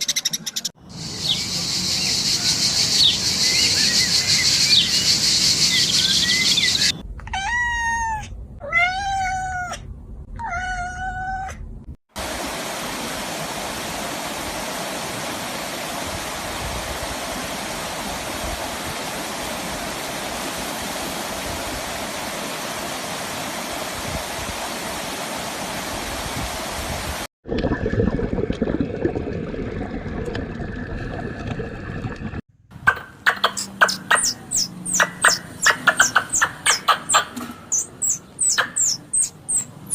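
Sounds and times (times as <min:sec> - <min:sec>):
cat meowing: 0:07.3 - 0:11.6
quick sharp calls: 0:32.8 - 0:39.9.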